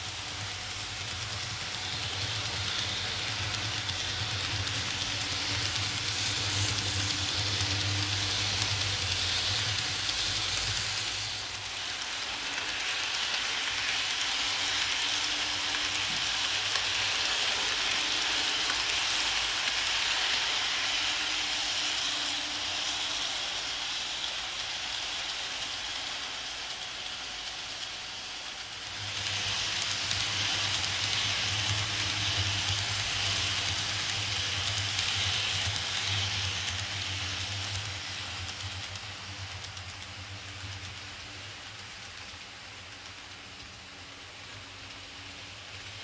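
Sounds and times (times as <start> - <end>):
model train motor whirring: 0.0 - 46.0.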